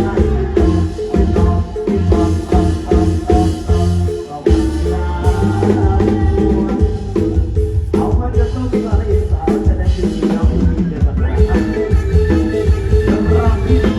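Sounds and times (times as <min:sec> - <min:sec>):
drum kit and bass beat: 0:00.0 - 0:13.9
repeating melodic line: 0:11.3 - 0:13.9.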